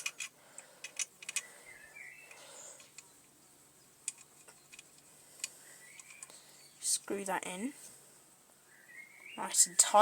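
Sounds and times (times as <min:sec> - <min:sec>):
clicks and taps of small parts: 0:00.0 - 0:01.5, 0:04.0 - 0:06.4.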